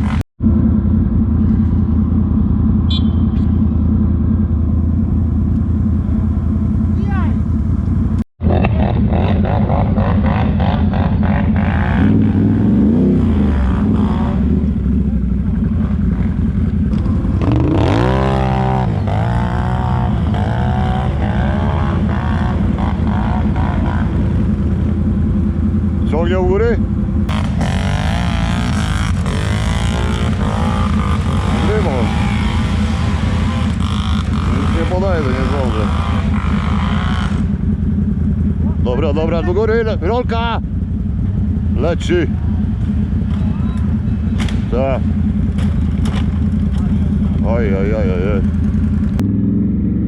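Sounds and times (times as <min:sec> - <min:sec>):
atv engine running: 0:00.0 - 0:50.0.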